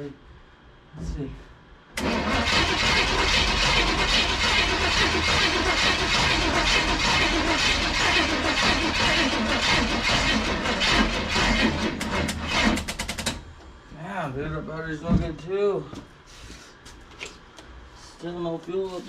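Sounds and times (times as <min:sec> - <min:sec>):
starter motor cranking engine: 0:02.0 - 0:13.4.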